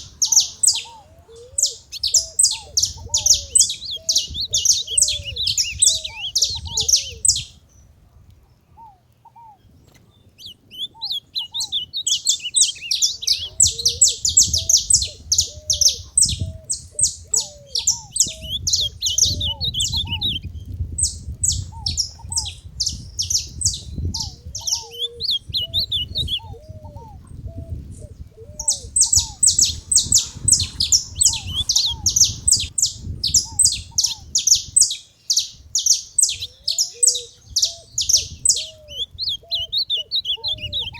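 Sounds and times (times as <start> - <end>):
finches chirping: 0.0 - 7.5, 9.9 - 26.8, 28.6 - 40.9
soft low curved whistles: 8.7 - 39.8.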